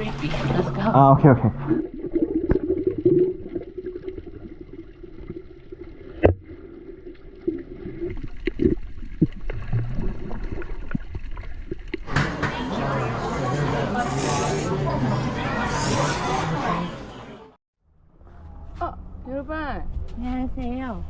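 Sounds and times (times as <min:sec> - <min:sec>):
water gurgling and sloshing underwater: 0:00.0 - 0:12.1.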